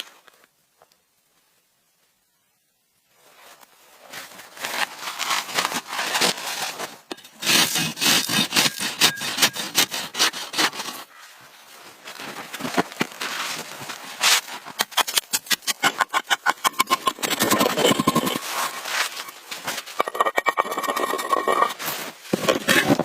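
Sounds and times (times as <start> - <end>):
scraping and rubbing on wood: 5.2 - 11.1, 14.2 - 23.0.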